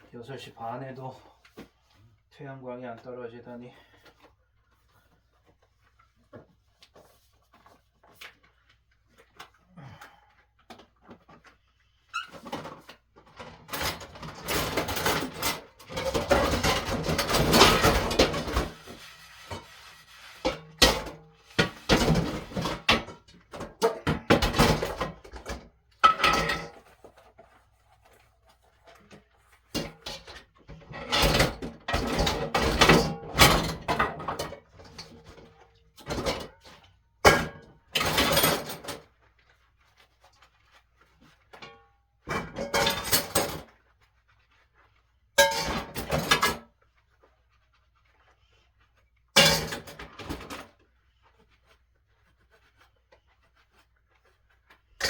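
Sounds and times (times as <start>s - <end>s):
dishes and pots clattering: 12.2s - 26.9s, 29.8s - 39.1s, 41.6s - 43.7s, 45.4s - 46.6s, 49.4s - 50.7s.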